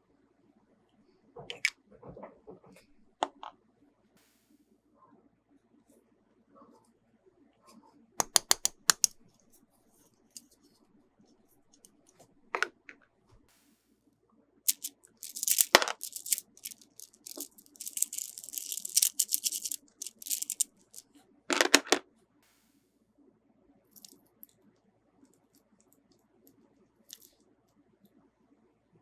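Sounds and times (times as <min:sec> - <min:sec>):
packaging clicks and snaps: 0:08.2 - 0:09.2, 0:14.7 - 0:20.6
crinkly plastic rustling: 0:14.7 - 0:20.7.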